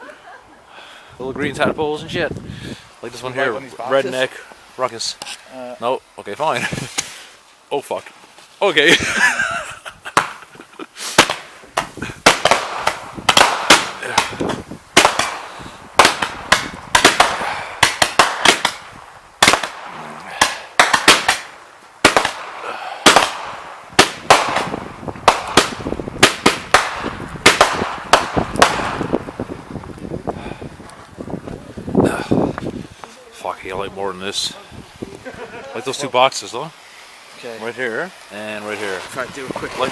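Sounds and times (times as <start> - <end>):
firework crackle and hiss: 0.0 - 39.9
firework bangs: 9.3 - 33.0.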